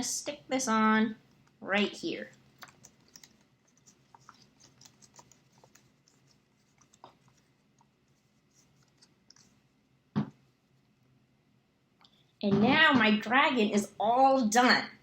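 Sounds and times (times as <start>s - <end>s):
paper rustling: 2.2s - 9.6s.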